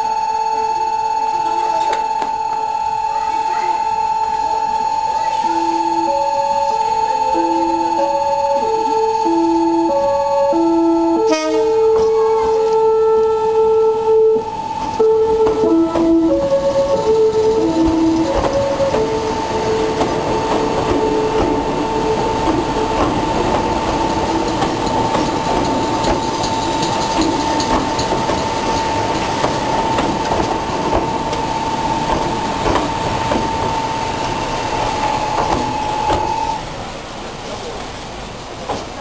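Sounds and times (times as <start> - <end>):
steady high-pitched tone: 0.0 - 36.7
train rumble: 1.4 - 39.0
train wheels clacking over rail joints: 14.8 - 36.6.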